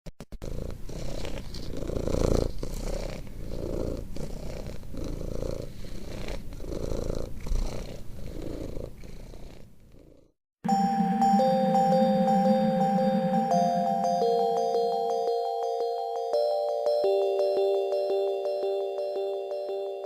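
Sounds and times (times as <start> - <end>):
cat purring: 0.4 - 10.3.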